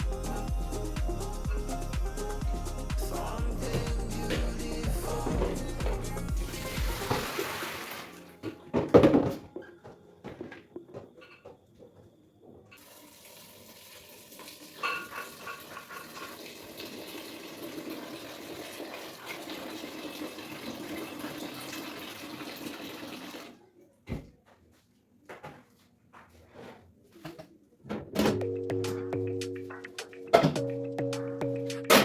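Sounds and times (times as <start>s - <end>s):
tap running water into sink: 6.8s - 8.1s.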